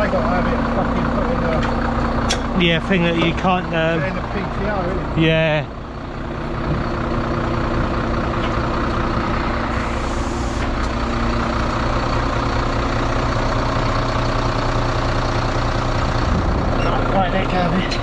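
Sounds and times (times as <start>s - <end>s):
truck diesel engine running: 0.0s - 18.0s
air hiss: 9.6s - 10.8s.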